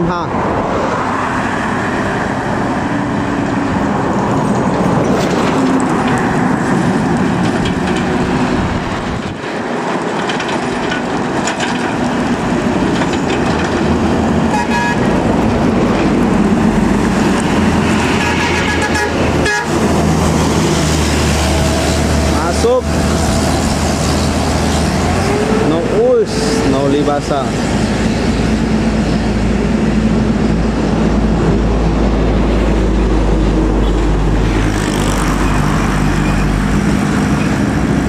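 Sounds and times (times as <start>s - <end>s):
heavy vehicles passing: 0.0s - 38.0s
vehicle horn: 14.5s - 15.1s, 18.1s - 19.8s.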